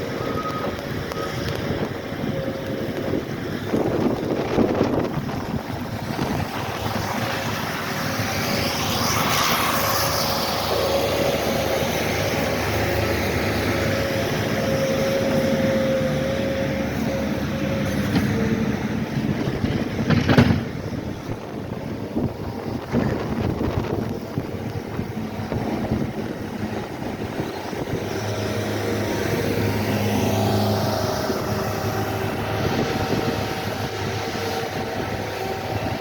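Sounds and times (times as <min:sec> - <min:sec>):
heavy vehicle engine running: 0:00.0 - 0:36.0.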